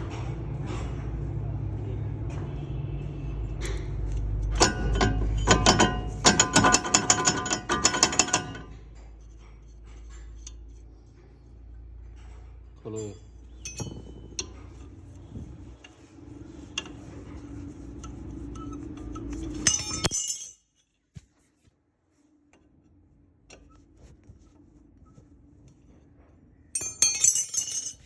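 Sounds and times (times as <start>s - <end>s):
steady low hum: 0.0s - 20.6s
metal tools clinking: 4.4s - 8.8s, 12.2s - 15.9s, 18.6s - 21.0s, 26.7s - 28.0s.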